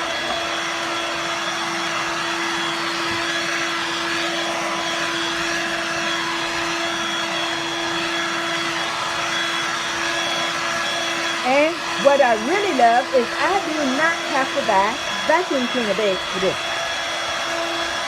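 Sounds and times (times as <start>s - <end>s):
vacuum cleaner motor whir: 0.0s - 18.0s.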